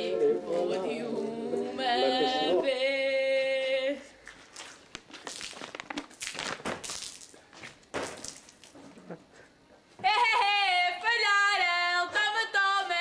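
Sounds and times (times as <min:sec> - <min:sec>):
person singing: 0:00.0 - 0:04.1.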